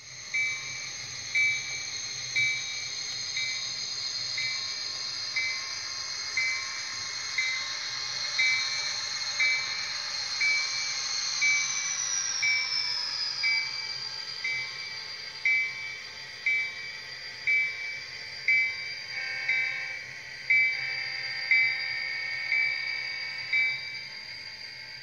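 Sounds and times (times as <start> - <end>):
model train high whine: 0.0 - 25.0
model train bell ringing: 0.3 - 3.7, 5.3 - 11.8, 14.4 - 16.9, 17.5 - 24.2.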